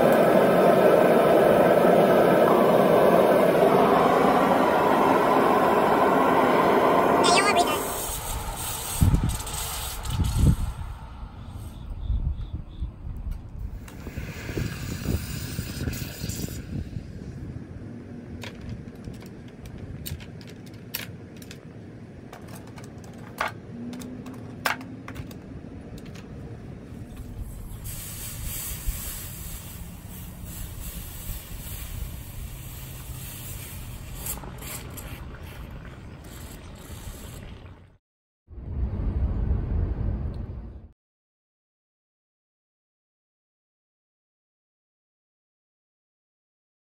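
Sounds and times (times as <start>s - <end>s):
hot metal hissing in water: 7.6s - 11.8s, 13.7s - 17.1s, 27.4s - 37.7s.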